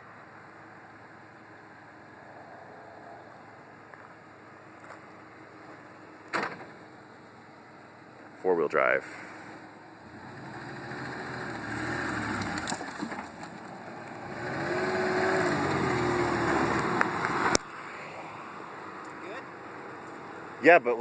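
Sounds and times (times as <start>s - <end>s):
vehicle engine revving under load: 9.5s - 19.1s.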